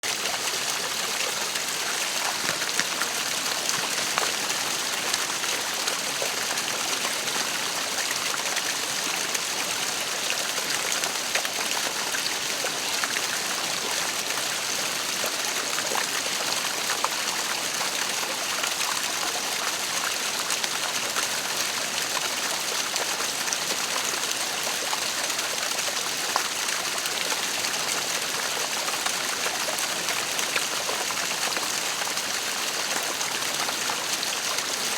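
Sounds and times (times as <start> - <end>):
waterfall splashing: 0.0 - 8.6.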